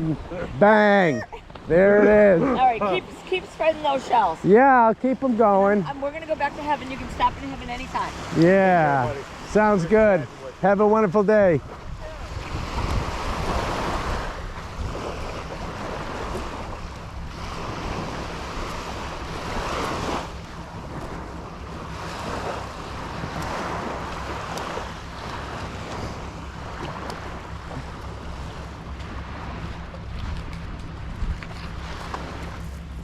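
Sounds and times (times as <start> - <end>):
surf breaking on beach: 1.6 - 32.8
wind buffeting microphone: 11.2 - 33.0.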